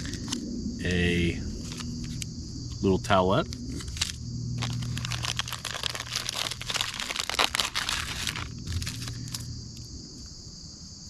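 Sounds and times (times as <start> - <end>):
crickets chirping: 0.0 - 11.0
plastic packaging crinkling: 1.6 - 2.8, 3.5 - 9.5.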